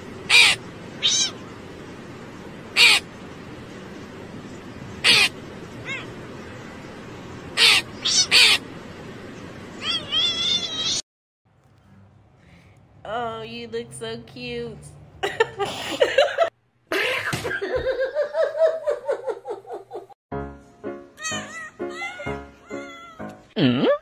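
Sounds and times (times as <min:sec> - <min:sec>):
steady background noise: 0:00.0 - 0:16.6
crow cawing: 0:00.3 - 0:00.6, 0:02.8 - 0:03.0, 0:05.0 - 0:05.3.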